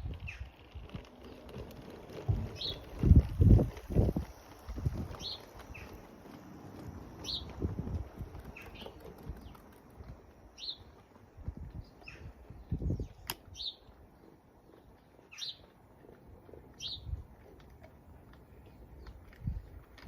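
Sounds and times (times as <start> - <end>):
bird chirping: 1.2 - 3.1, 4.9 - 6.4, 7.1 - 11.0, 11.8 - 17.2
sharp click: 13.2 - 13.5.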